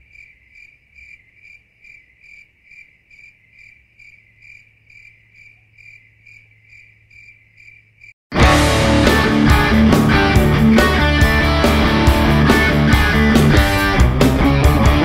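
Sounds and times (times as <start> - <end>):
insect chirping: 0.0 - 8.2.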